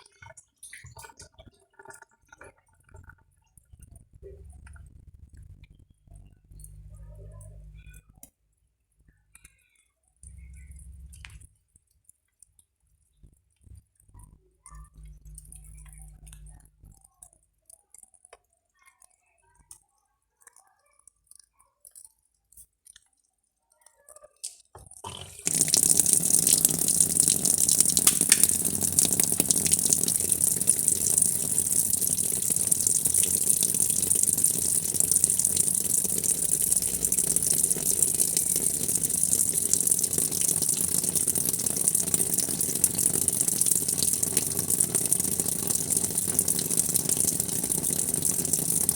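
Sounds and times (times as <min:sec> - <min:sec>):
running water rushing: 0:25.1 - 0:48.9.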